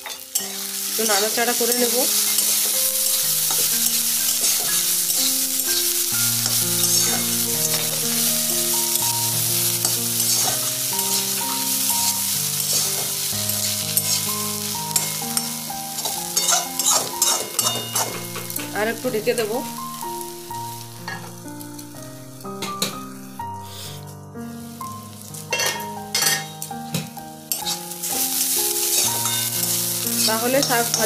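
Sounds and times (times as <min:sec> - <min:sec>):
spatula scraping a pan: 0:00.0 - 0:09.0, 0:09.8 - 0:18.6, 0:27.5 - 0:31.0
quiet instrumental melody: 0:00.0 - 0:31.0
vegetables sizzling in oil: 0:00.0 - 0:31.0.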